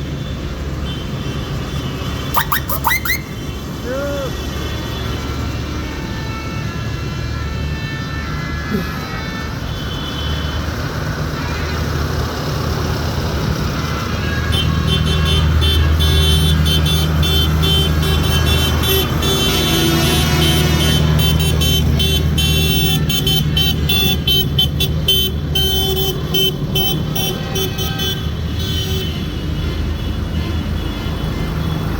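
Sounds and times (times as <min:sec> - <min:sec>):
high toots: 0:02.3 - 0:03.4.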